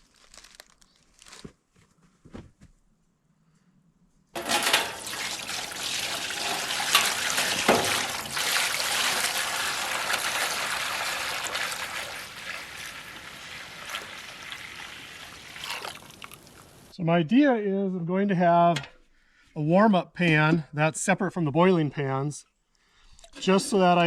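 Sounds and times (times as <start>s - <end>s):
sap pouring into metal pan: 4.4s - 16.8s.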